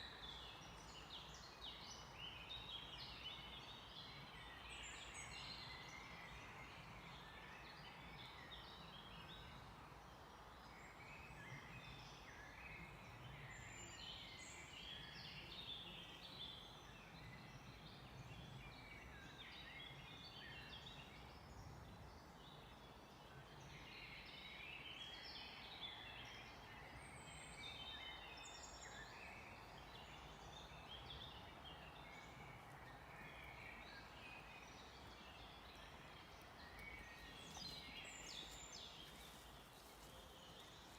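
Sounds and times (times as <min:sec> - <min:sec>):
songbirds chirping: 0:00.0 - 0:40.9
steady background hiss: 0:20.1 - 0:40.9.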